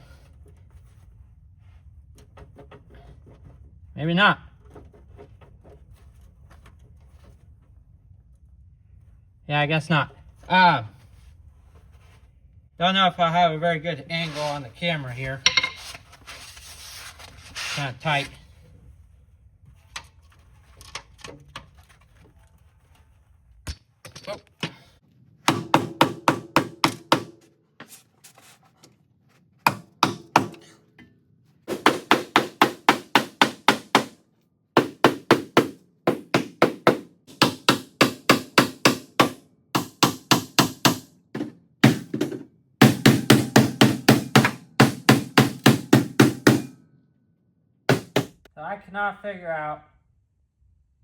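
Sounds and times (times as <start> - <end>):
hammer striking car-body steel: 15.5 - 16.0, 25.5 - 27.4, 29.7 - 30.8, 31.7 - 34.2, 34.8 - 46.8.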